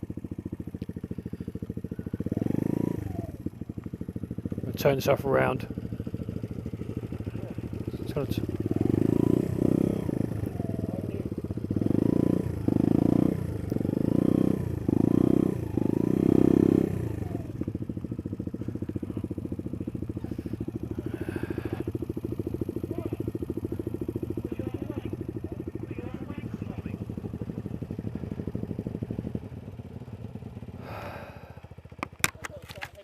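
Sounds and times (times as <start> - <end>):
motorcycle engine revving and idling: 0.0 - 33.0.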